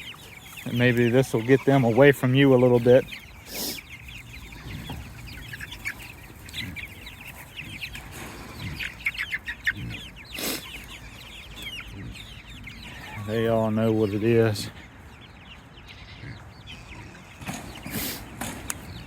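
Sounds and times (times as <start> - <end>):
chickens peeping: 0.0 - 19.0.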